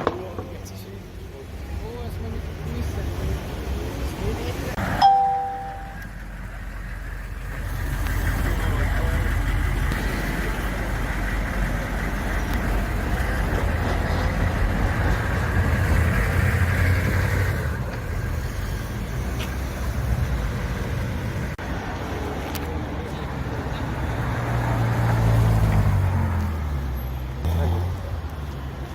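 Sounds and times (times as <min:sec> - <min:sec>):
car engine rumbling: 0:00.0 - 0:28.9
brief sharp tone: 0:05.0 - 0:06.0.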